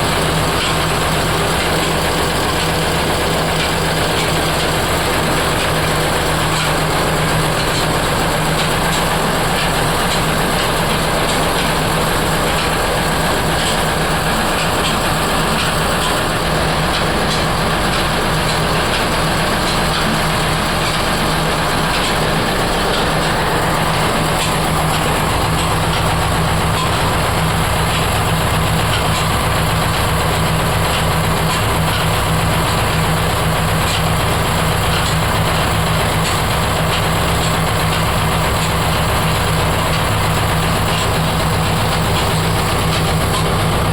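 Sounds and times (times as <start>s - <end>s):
machinery low hum: 0.0s - 43.9s
mechanical clatter: 0.1s - 43.9s.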